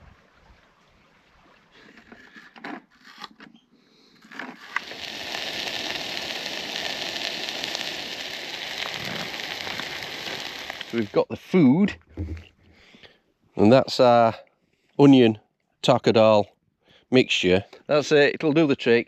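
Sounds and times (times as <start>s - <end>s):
onions sizzling in a pan: 4.7s - 11.2s.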